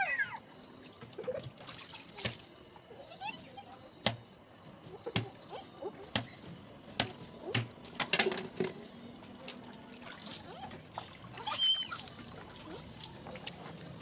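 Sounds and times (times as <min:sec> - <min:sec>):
water splashing in a plastic bin: 0:00.8 - 0:02.6, 0:07.0 - 0:14.0.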